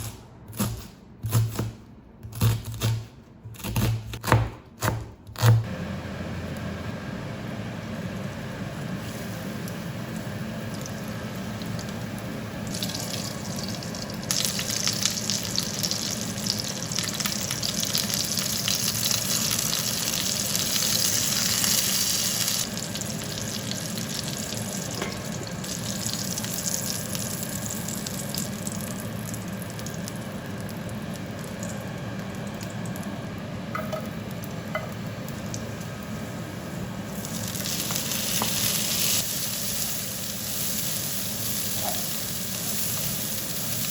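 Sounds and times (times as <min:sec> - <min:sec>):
food sizzling in a pan: 0:07.2 - 0:32.1, 0:33.8 - 0:43.9.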